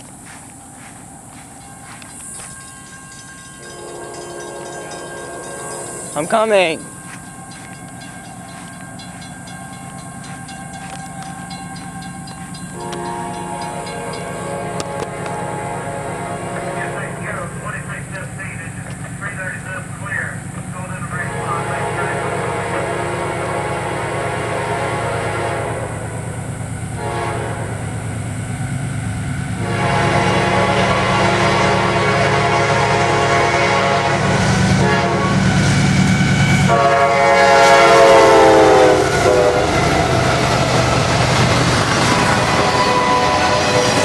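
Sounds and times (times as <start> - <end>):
train rumbling past: 0.0 - 44.0
locomotive air horn chord: 3.6 - 7.0, 10.2 - 19.6, 20.9 - 26.3, 27.0 - 27.9, 29.6 - 40.6, 42.0 - 44.0
faint rail clicks: 18.1 - 19.2.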